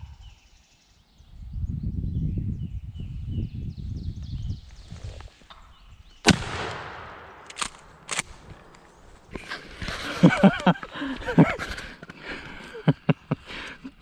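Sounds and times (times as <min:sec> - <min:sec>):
shotgun blast with echo: 0:06.2 - 0:08.4
sharp clicks: 0:06.3 - 0:09.5.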